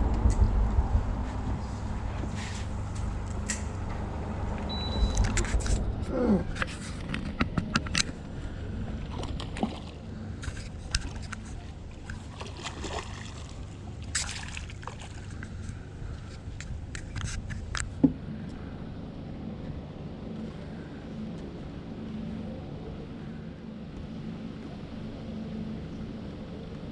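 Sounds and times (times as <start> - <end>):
steady low rumble: 0.0 - 26.9
water sloshing and splashing: 6.5 - 18.0.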